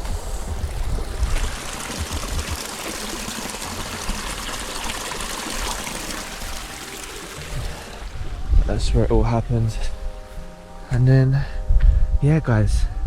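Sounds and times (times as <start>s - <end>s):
small stream trickling: 0.0s - 8.3s.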